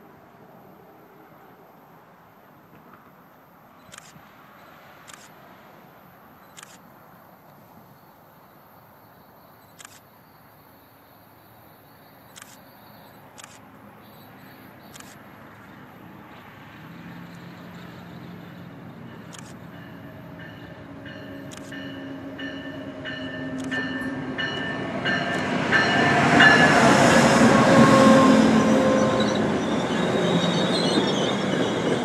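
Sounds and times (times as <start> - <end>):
camera shutter clicks: 3.8 - 4.2, 5.0 - 5.4, 6.4 - 6.9, 9.7 - 10.1, 12.3 - 12.7, 13.3 - 13.8, 14.9 - 15.2, 19.3 - 19.6, 21.5 - 21.8, 23.6 - 23.8
train approaching: 10.8 - 32.0.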